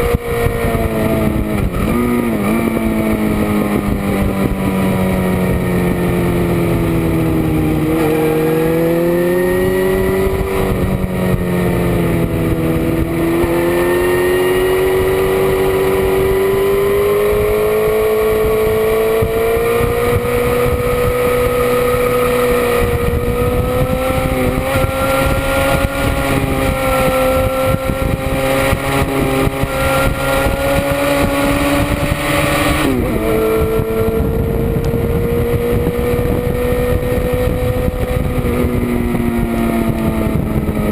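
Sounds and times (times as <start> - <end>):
motorcycle engine running hard: 0.0 - 40.9
wind rushing: 0.0 - 40.9.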